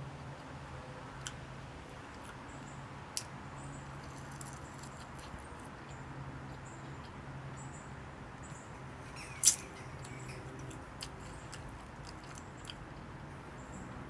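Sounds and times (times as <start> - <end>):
chewing food: 1.1 - 7.7, 9.3 - 12.8.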